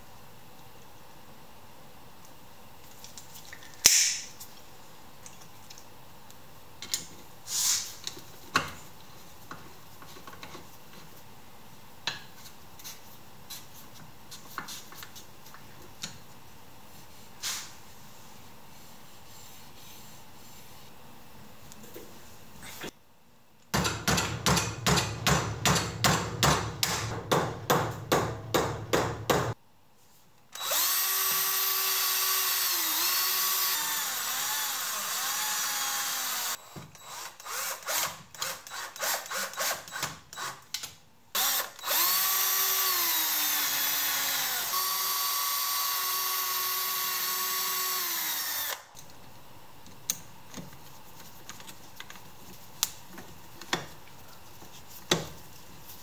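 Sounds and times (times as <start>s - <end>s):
power drill whining into wood: 30.6s - 39.7s, 41.4s - 48.8s.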